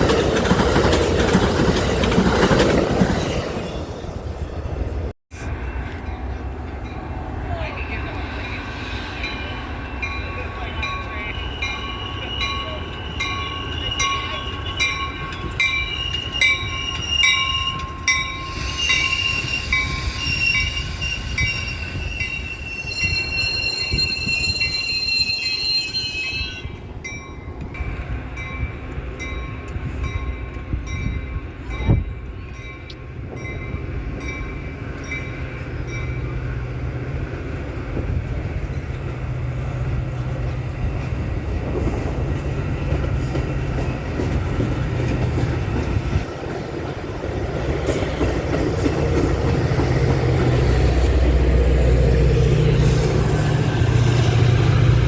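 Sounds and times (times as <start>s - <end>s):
train wheels squealing: 7.5s - 26.8s, 41.9s - 46.9s.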